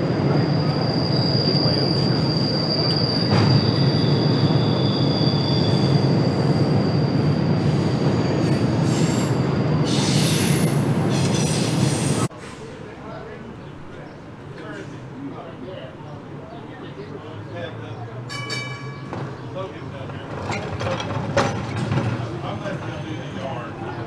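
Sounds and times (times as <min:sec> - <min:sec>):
train wheel squealing: 0:00.0 - 0:12.3, 0:18.3 - 0:24.0
freight train rumbling over bridge: 0:00.0 - 0:24.0.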